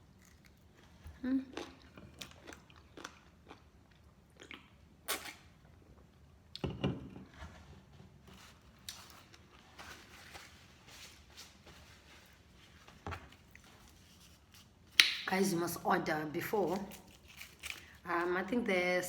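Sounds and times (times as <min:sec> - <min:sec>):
chewing crunchy food: 0:00.0 - 0:05.5, 0:16.7 - 0:18.1.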